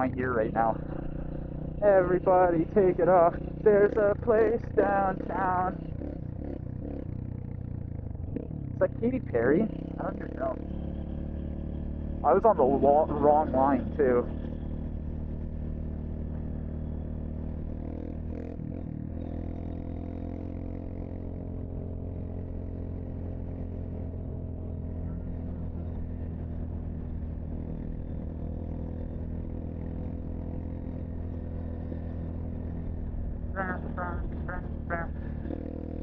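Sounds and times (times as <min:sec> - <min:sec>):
road noise: 0:00.0 - 0:36.0
vehicle engine drone: 0:00.0 - 0:36.0.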